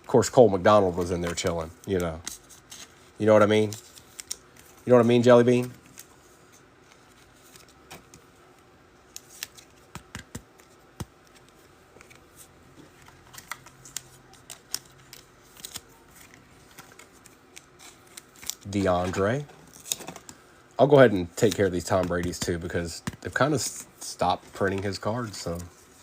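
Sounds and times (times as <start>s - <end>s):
trading cards clicking and tapping: 9.1s - 12.2s, 21.4s - 25.7s.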